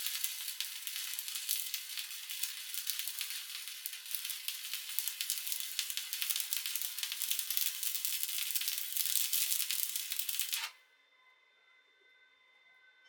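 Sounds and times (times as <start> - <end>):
welding arc crackling: 0.0 - 10.7.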